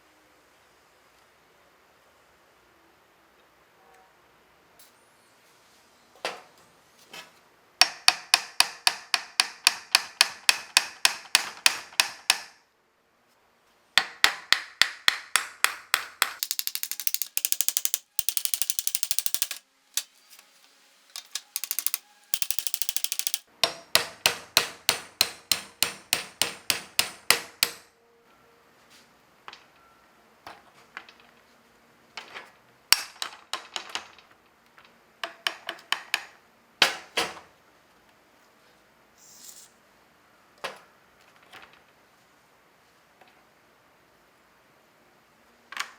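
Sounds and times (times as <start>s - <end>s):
hammer striking metal: 7.8s - 12.6s, 14.0s - 20.5s, 21.2s - 27.9s.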